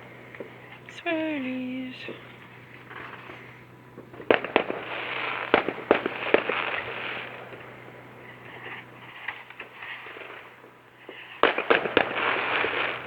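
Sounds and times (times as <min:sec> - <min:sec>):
firework bangs: 0:00.0 - 0:13.0
fireworks crackling: 0:00.0 - 0:13.0.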